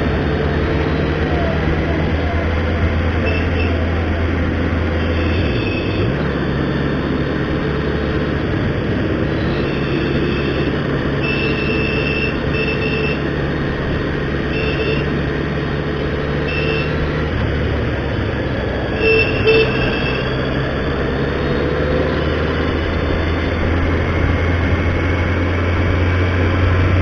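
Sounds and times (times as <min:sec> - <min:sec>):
motorcycle engine running: 0:00.0 - 0:27.0
short horn toots: 0:16.5 - 0:17.0.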